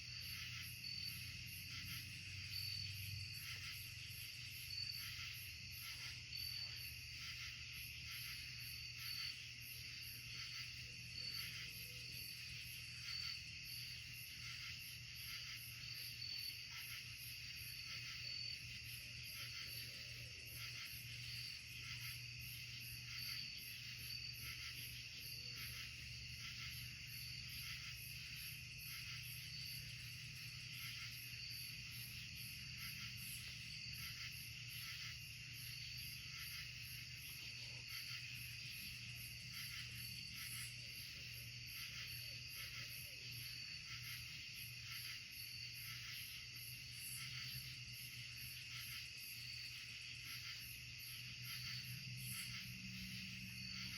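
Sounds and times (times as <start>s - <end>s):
crickets trilling: 0.0s - 53.9s.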